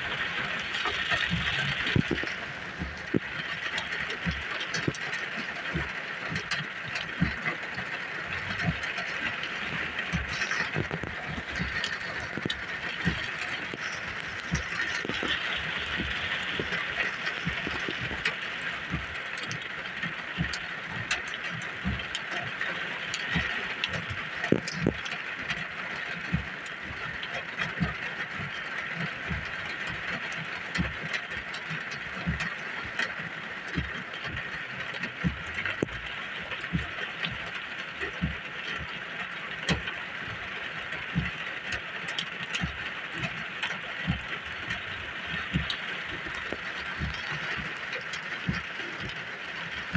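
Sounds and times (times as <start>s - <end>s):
heavy rain hiss: 0.0s - 21.0s, 42.8s - 49.9s.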